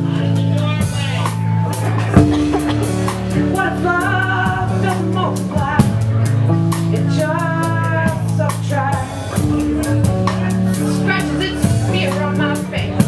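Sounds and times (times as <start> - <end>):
held higher instrumental lines: 0.0 - 6.8
drum kit beat: 0.0 - 13.0
sustained bass notes: 0.0 - 13.0.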